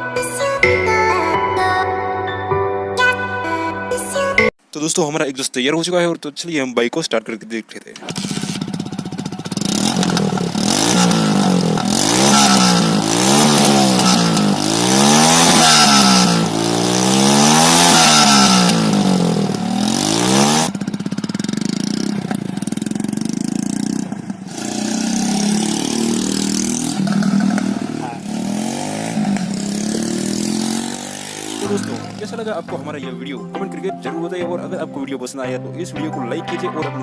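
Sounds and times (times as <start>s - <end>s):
motorcycle engine revving: 8.0s - 32.9s.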